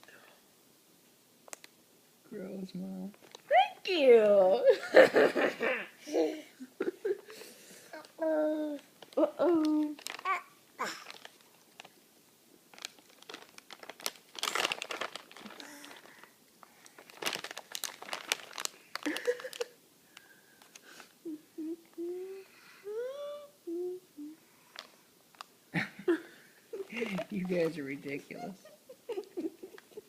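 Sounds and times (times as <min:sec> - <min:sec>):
crinkling crackling noises: 0:01.4 - 0:01.8, 0:03.0 - 0:04.4, 0:07.0 - 0:21.2, 0:24.6 - 0:25.6, 0:26.7 - 0:28.4
young child babbling: 0:06.0 - 0:06.6, 0:08.0 - 0:08.9, 0:10.2 - 0:11.2, 0:21.3 - 0:24.4.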